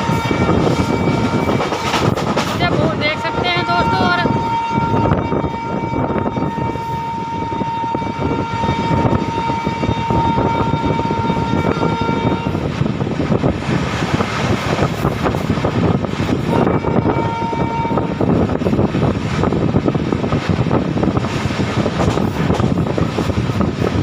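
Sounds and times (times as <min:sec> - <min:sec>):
locomotive horn: 0:00.0 - 0:02.2, 0:02.8 - 0:12.7, 0:16.4 - 0:18.4
train wheels rumbling and rattling: 0:00.0 - 0:24.0.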